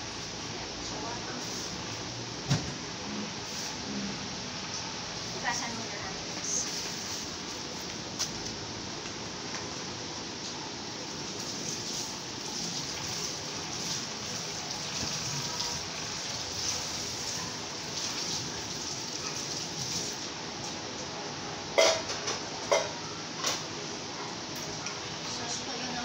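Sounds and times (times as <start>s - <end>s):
heavy rain hissing: 11.0s - 20.2s
tableware clinking: 21.8s - 23.0s.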